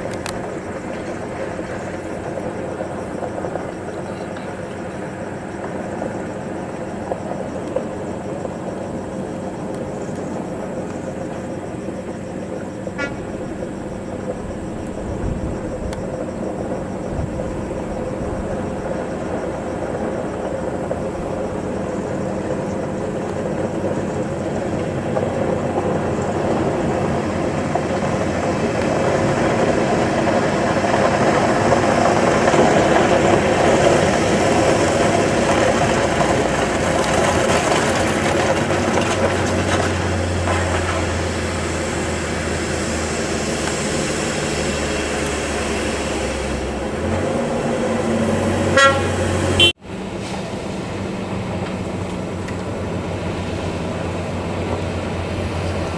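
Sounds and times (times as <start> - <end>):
heavy diesel truck running: 0.0 - 55.9.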